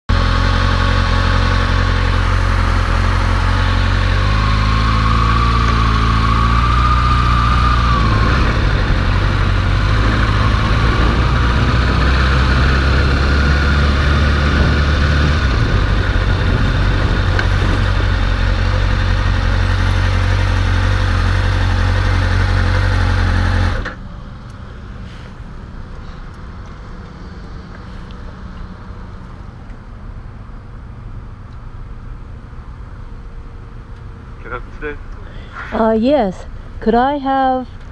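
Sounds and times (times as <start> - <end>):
motorcycle engine running: 0.1 - 23.9.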